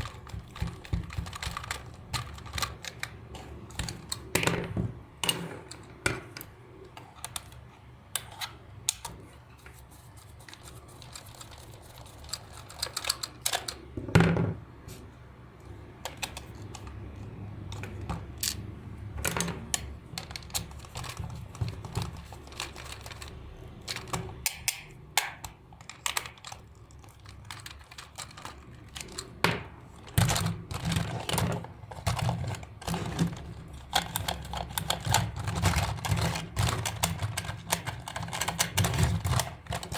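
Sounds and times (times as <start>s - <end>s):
plastic toy parts clicking: 0.0s - 4.5s, 10.5s - 13.9s, 16.0s - 17.0s, 17.7s - 18.6s, 19.2s - 39.9s.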